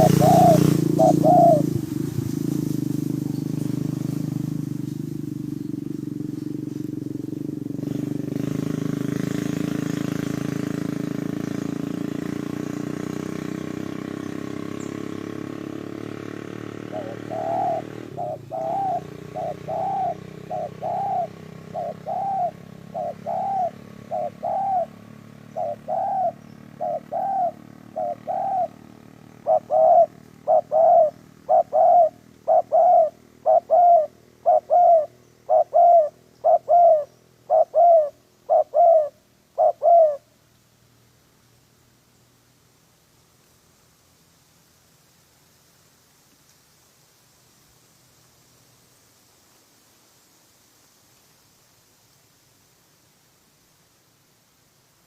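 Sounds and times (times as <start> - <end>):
dove cooing: 0.0 - 2.2, 16.7 - 40.3
low engine hum: 0.0 - 45.4.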